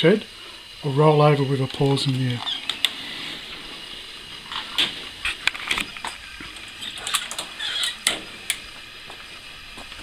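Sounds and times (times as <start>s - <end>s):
footsteps on a driveway: 8.2s - 10.0s.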